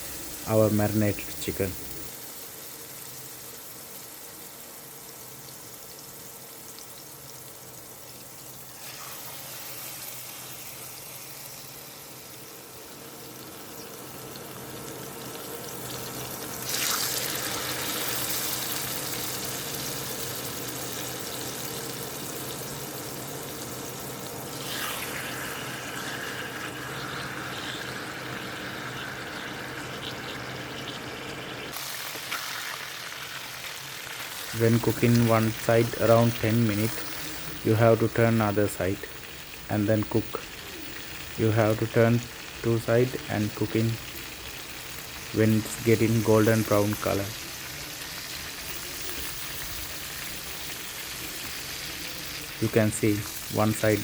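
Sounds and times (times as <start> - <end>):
chicken sizzling in hot oil: 0.0 - 54.0.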